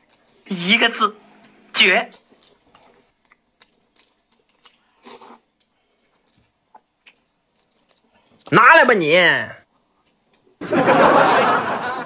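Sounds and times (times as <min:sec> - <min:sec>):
faint chewing and mouth clicks: 0:00.0 - 0:00.4, 0:01.3 - 0:08.5, 0:09.6 - 0:10.6.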